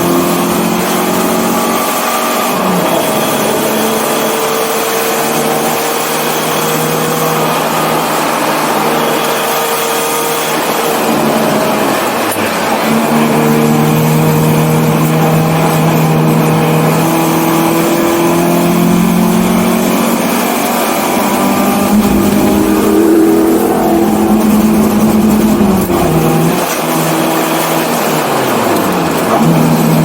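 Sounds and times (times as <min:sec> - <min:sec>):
car engine running hard: 0:00.0 - 0:30.0.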